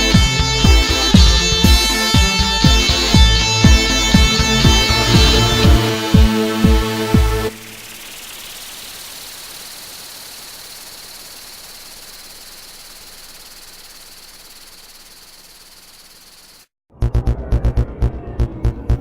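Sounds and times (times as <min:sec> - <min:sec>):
steady high hiss: 0:07.0 - 0:16.7.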